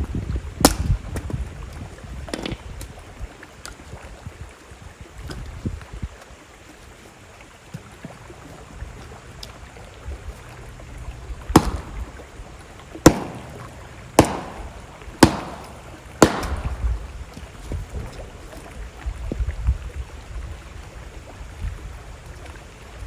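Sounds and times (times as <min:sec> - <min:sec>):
river flowing: 0:06.2 - 0:19.0
axe chopping wood: 0:11.6 - 0:12.2, 0:13.0 - 0:16.9.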